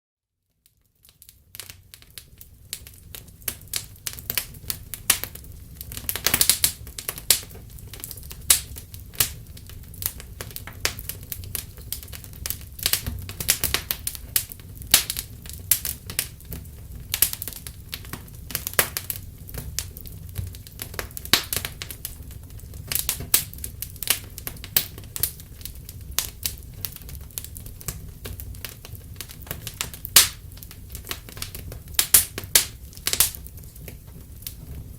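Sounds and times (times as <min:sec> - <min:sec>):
wood fire crackling: 0:00.6 - 0:34.9
sharp pops: 0:30.2 - 0:30.4.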